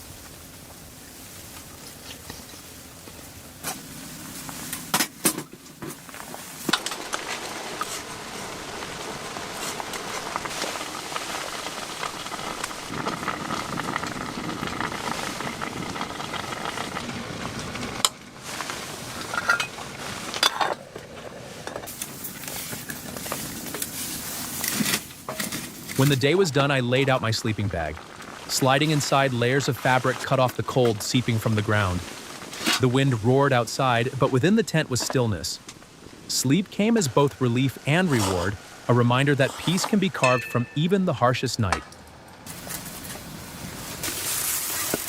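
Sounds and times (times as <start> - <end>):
food sizzling and crackling: 0.0 - 20.7, 21.8 - 34.3, 42.5 - 45.0.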